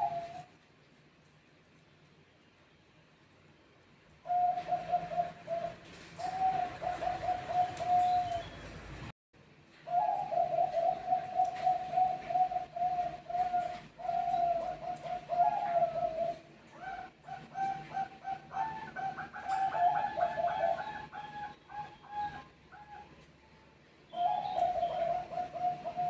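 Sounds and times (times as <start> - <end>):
doves cooing: 0.0 - 0.6, 4.2 - 8.8, 9.8 - 23.2, 24.1 - 26.0
higher dove calling: 0.0 - 0.6, 4.2 - 8.6, 9.8 - 23.2, 24.1 - 26.0.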